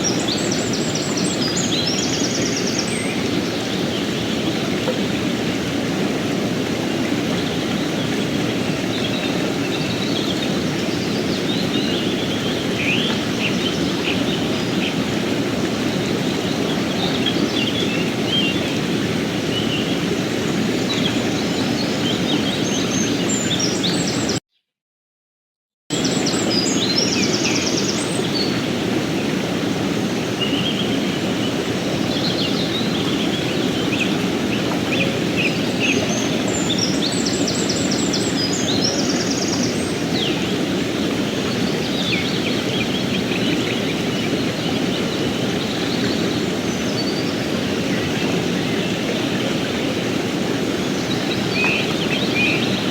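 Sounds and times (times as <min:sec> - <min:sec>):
mountain stream rushing: 0:00.0 - 0:24.4, 0:25.9 - 0:52.9
small birds chirping: 0:30.4 - 0:52.9.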